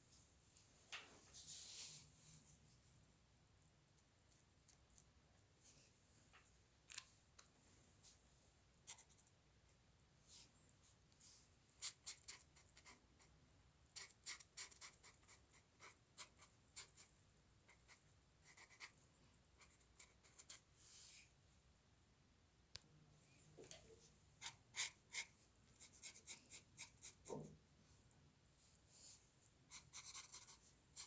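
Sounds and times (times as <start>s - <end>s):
drawing tool scratching on paper: 14.0s - 17.1s, 24.4s - 27.3s, 29.7s - 31.0s.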